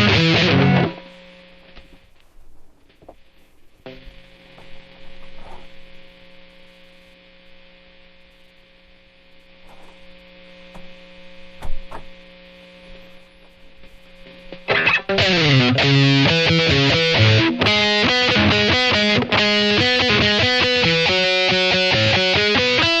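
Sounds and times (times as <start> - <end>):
distorted electric guitar slide: 0.0 - 2.0, 3.8 - 6.8, 14.2 - 23.0
guitar amp mains buzz: 0.0 - 23.0.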